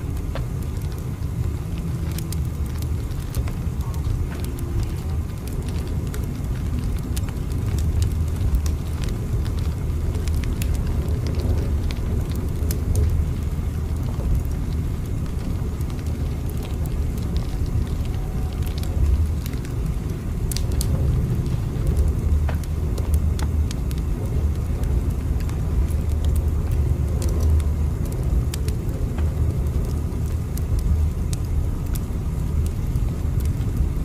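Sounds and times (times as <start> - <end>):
light crackles and ticks: 0.0 - 34.0
moving train rumble: 0.0 - 34.0.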